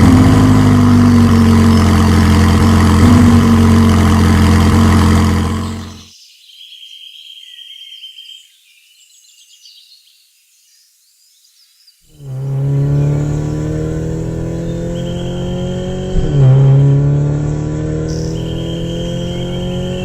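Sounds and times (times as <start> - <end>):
heavy engine idling: 0.0 - 6.0, 12.2 - 17.0
faint high chirps: 18.1 - 20.0.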